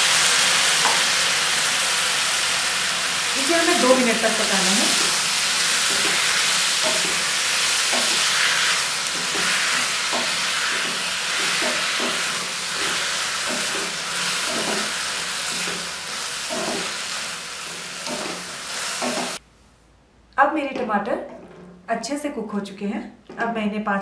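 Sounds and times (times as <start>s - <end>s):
vegetables sizzling in butter: 0.0s - 19.4s
wooden spatula scraping: 4.9s - 19.4s.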